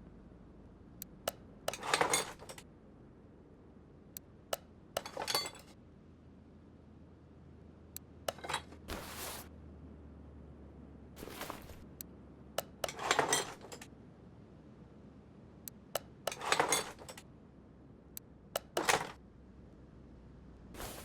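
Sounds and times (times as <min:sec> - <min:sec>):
metal parts clinking and rattling: 0:01.7 - 0:02.6, 0:05.0 - 0:05.8, 0:08.3 - 0:08.8, 0:12.6 - 0:13.9, 0:16.3 - 0:17.2, 0:18.6 - 0:19.2.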